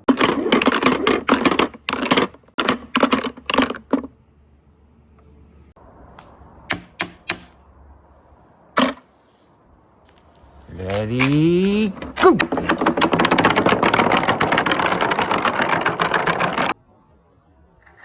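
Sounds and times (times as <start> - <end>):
marble clicks: 10.7 - 16.8
marbles clattering along track: 10.7 - 16.8.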